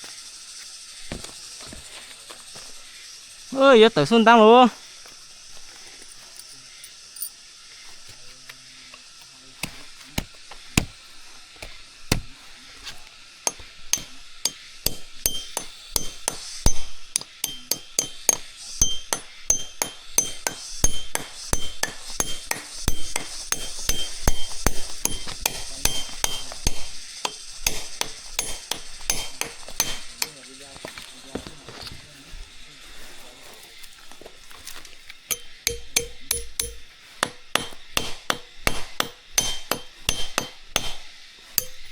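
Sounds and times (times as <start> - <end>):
sharp metallic knocks: 9.6 - 11.0, 11.6 - 12.4, 13.5 - 30.6, 35.3 - 41.9.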